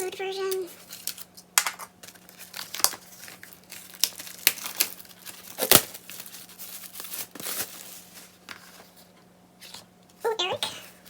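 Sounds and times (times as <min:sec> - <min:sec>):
plastic and paper packaging crinkling: 0:00.2 - 0:01.3, 0:02.0 - 0:09.2.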